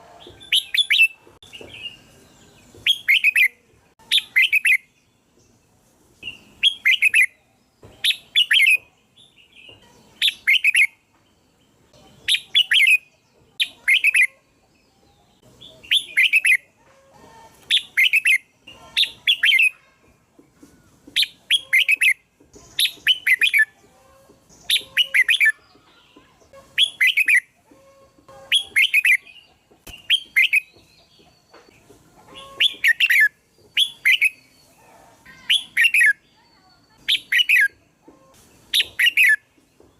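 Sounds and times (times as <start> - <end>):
bird chirping: 0.2 - 16.8, 17.6 - 39.9.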